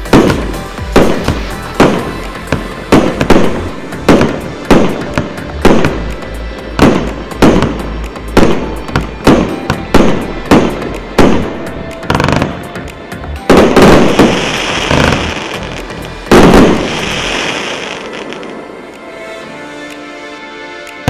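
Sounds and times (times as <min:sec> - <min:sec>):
firework bangs: 0:00.0 - 0:12.6, 0:13.4 - 0:18.5
heavy firework bursts: 0:13.4 - 0:18.5
crackling hiss of sparks: 0:13.4 - 0:19.0.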